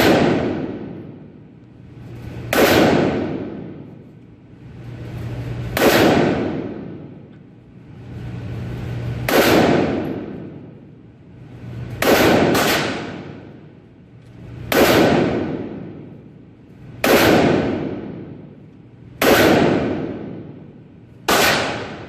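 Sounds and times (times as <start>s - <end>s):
rifle shots with echo: 0.0s - 1.6s, 2.2s - 4.2s, 5.6s - 7.3s, 9.1s - 11.0s, 12.0s - 13.8s, 14.6s - 22.0s.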